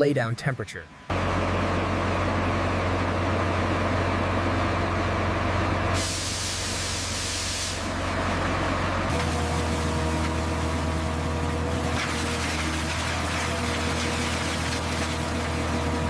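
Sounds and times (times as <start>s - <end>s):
paving machine engine hum: 0.6s - 16.0s
machinery hiss: 6.0s - 8.0s.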